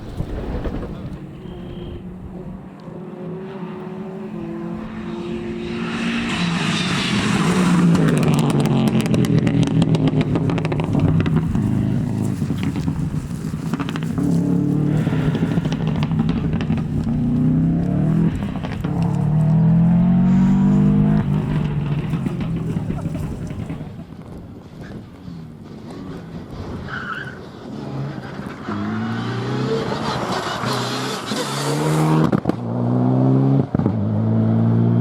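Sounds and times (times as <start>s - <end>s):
rally car engine accelerating: 0.1s - 35.0s
engine sharp crackles: 5.8s - 29.2s.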